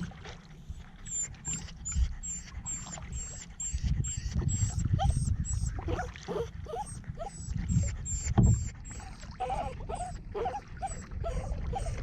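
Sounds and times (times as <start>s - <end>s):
dog whimpering: 4.6s - 12.0s.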